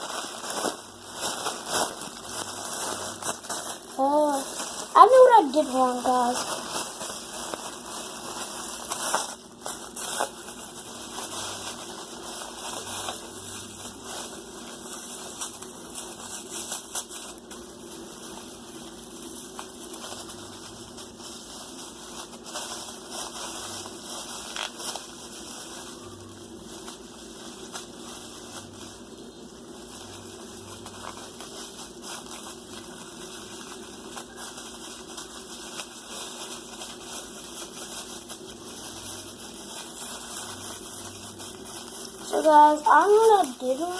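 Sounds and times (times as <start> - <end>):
plastic bag crinkling: 0.0 - 43.9
steady low hum: 0.0 - 43.9.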